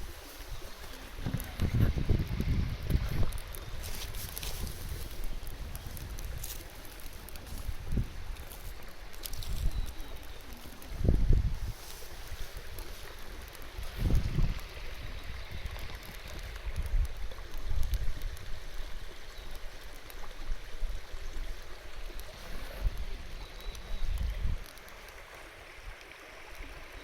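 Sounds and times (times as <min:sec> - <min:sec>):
wind buffeting microphone: 0:00.0 - 0:19.1, 0:22.4 - 0:24.7
stream murmuring: 0:00.0 - 0:27.0.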